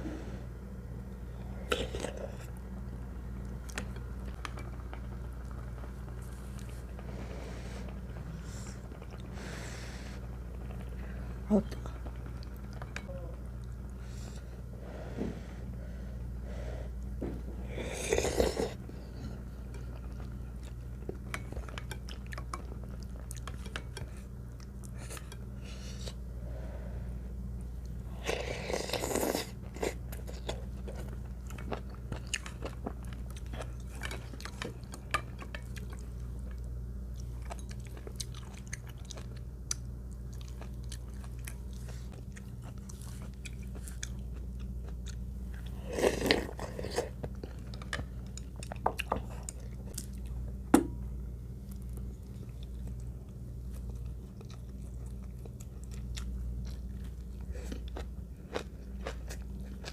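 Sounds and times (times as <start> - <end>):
steady low hum: 0.0 - 59.9
person chewing and crunching food: 17.0 - 26.2, 27.8 - 50.7, 51.6 - 59.9.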